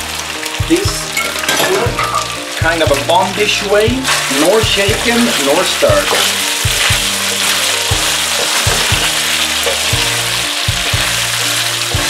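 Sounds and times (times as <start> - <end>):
background music: 0.0 - 12.0
food sizzling in a wok: 0.0 - 12.0
spatula stirring in a wok: 4.0 - 12.0.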